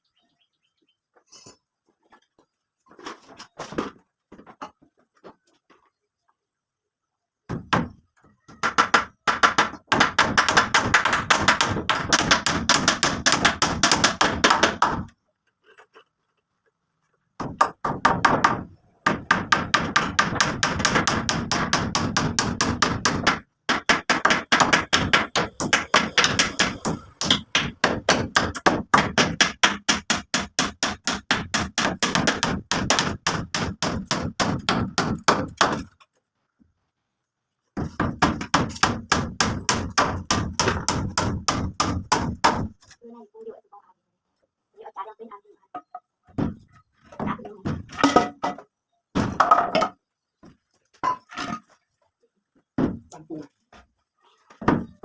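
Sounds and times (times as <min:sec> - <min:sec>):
hammer blows: 0:24.8 - 0:28.3.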